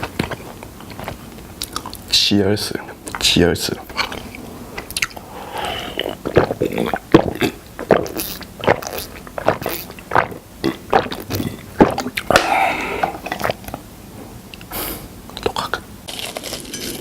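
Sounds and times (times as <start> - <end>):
wet chewing smacks and clicks: 0.0 - 2.1, 2.9 - 5.2, 6.0 - 12.4.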